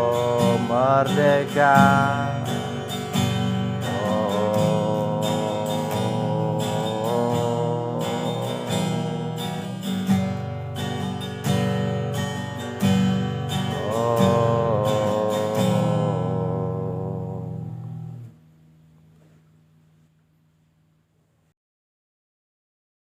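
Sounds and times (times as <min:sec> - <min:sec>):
person singing: 0:00.0 - 0:10.0, 0:13.4 - 0:17.9
acoustic guitar strumming: 0:00.0 - 0:19.3.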